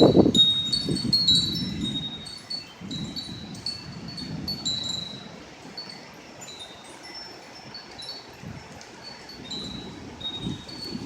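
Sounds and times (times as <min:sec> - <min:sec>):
wind chimes tinkling: 0:00.0 - 0:11.0.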